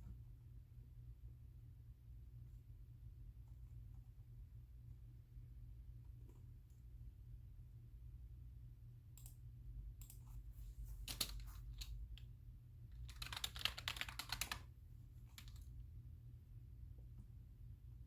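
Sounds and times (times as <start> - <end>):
typing on computer keyboard: 11.1 - 12.0, 13.0 - 14.7, 15.3 - 15.7.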